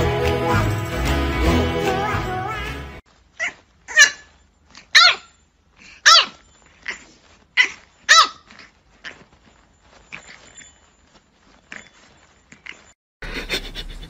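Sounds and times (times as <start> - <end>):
dog barking high-pitched yaps: 3.4 - 5.4, 6.0 - 7.0, 7.6 - 8.5.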